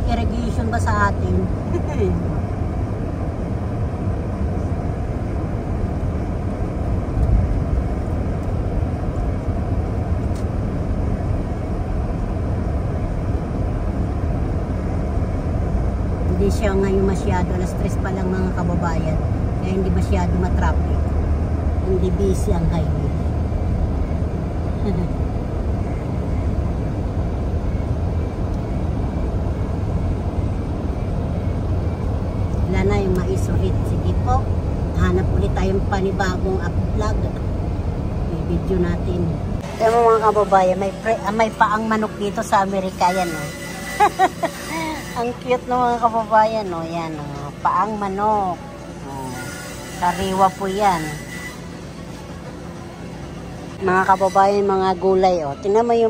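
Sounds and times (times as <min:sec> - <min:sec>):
car driving on highway: 0:00.0 - 0:40.1.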